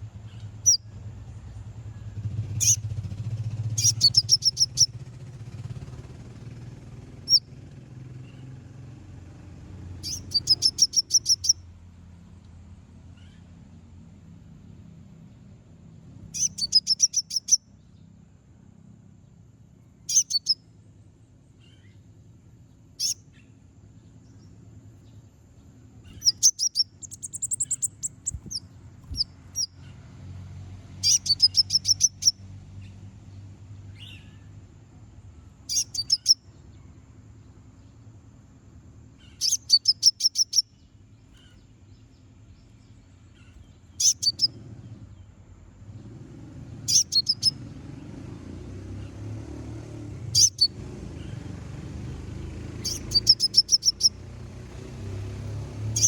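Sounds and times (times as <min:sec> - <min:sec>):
bird chattering trills: 0:00.2 - 0:00.9, 0:02.5 - 0:02.9, 0:03.6 - 0:06.0, 0:07.2 - 0:07.5, 0:10.0 - 0:11.6, 0:16.3 - 0:17.6, 0:20.0 - 0:20.6, 0:22.9 - 0:23.6, 0:26.0 - 0:30.0, 0:31.0 - 0:32.4, 0:35.6 - 0:36.4, 0:39.2 - 0:41.7, 0:42.5 - 0:45.3, 0:46.9 - 0:47.6, 0:50.3 - 0:51.6, 0:52.6 - 0:54.2.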